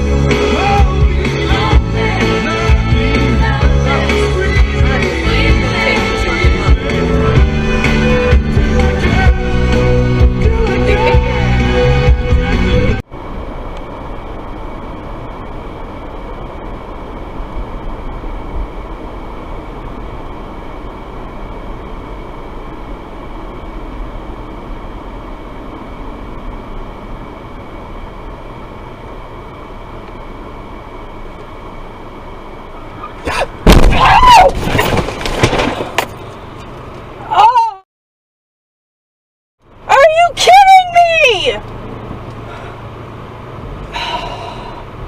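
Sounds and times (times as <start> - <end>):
car road and engine noise: 0.0 - 37.8, 39.6 - 45.0
loud sudden noise with wavering pitch: 33.2 - 35.1.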